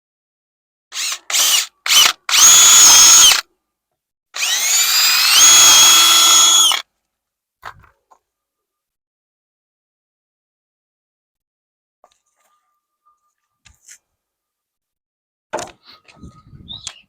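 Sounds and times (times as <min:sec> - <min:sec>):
power drill running: 0:01.0 - 0:03.4, 0:04.4 - 0:06.8.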